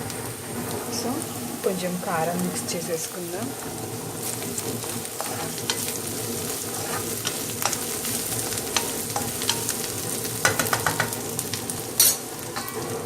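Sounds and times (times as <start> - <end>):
masala sizzling in a pan: 0.0 - 13.0
spatula scraping and tapping pan: 4.8 - 11.4.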